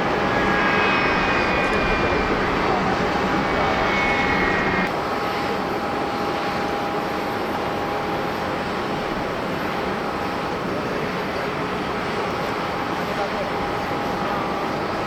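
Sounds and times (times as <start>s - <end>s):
high whine: 0.0s - 4.9s
jet engines rushing: 0.0s - 4.9s
faint engine whine: 0.0s - 5.2s.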